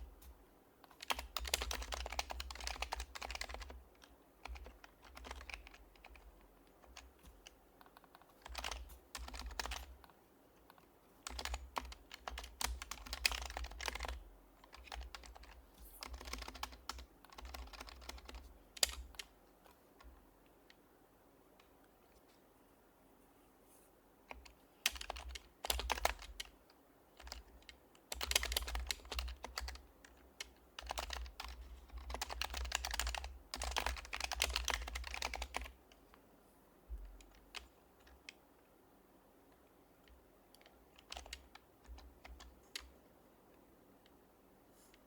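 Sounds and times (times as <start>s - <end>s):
typing on a keyboard: 0.9s - 19.3s, 24.3s - 26.6s, 27.2s - 35.8s, 37.1s - 38.4s, 40.0s - 42.9s.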